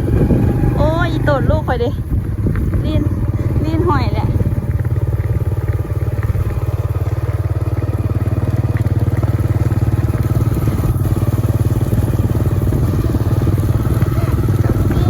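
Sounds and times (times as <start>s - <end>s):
small vehicle engine running: 0.0s - 15.0s.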